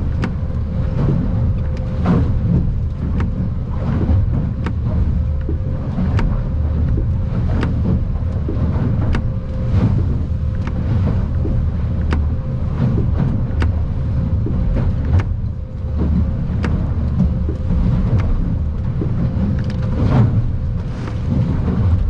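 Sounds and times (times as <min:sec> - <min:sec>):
boat motor and hull rumble: 0:00.0 - 0:22.0
sharp knocks and clicks: 0:00.0 - 0:22.0.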